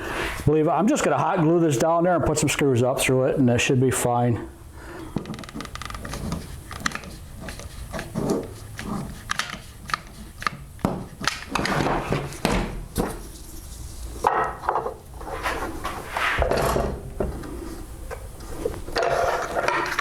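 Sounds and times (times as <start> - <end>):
wood rubbing: 5.2 - 16.5.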